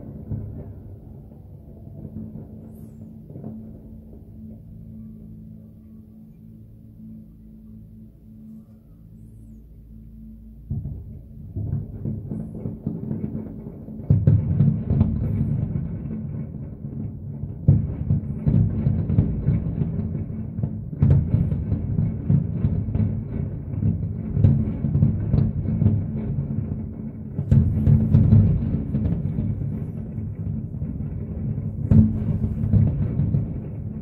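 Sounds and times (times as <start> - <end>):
fireworks booming: 0.0 - 4.8, 10.7 - 34.0
sharp firework bangs: 27.3 - 34.0.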